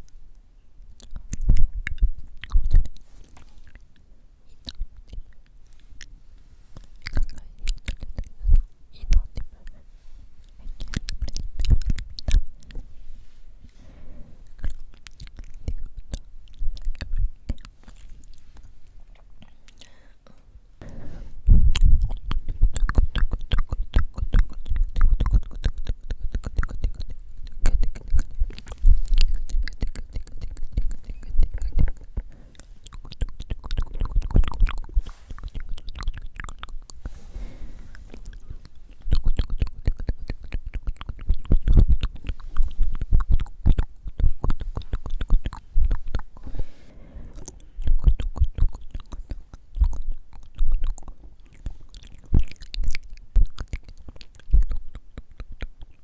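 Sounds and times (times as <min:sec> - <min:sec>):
wet mouth clicks and smacks: 0:00.9 - 0:06.2, 0:06.8 - 0:09.8, 0:10.4 - 0:12.9, 0:14.5 - 0:19.9, 0:21.4 - 0:37.2, 0:37.9 - 0:46.6, 0:47.3 - 0:56.0
breathy blowing into microphone: 0:20.8 - 0:21.6, 0:37.0 - 0:38.6.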